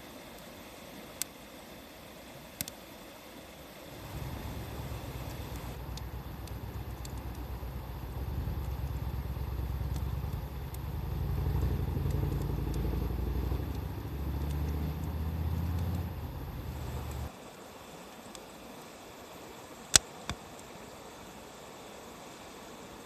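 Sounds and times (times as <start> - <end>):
wood fire crackling: 3.8 - 17.3
vehicle engine rumbling: 4.0 - 17.3.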